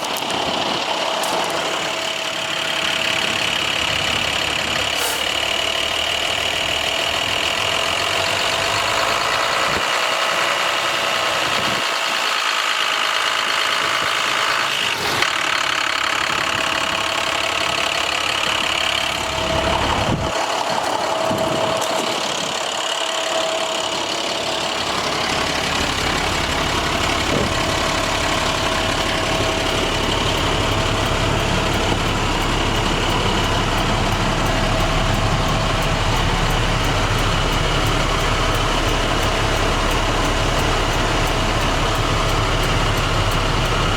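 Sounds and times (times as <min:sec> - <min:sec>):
diesel truck engine idling: 0:00.0 - 0:43.9
steady whine: 0:15.2 - 0:43.9.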